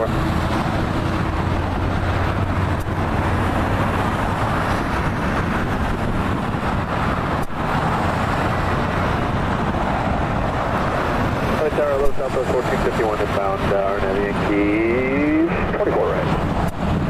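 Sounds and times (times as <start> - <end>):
engine roaring steadily: 0.0 - 17.0.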